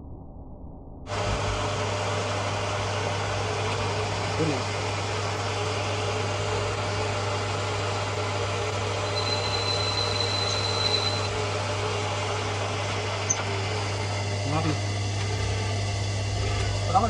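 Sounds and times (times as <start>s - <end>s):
thin high whine: 1.1s - 17.0s
workshop machinery humming: 1.1s - 17.0s.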